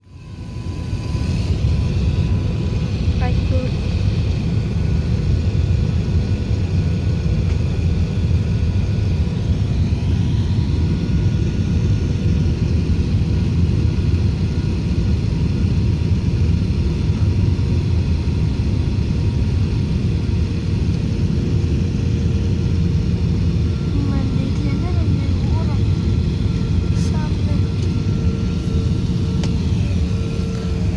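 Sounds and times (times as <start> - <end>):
aircraft cabin engine rumble: 0.1 - 30.9.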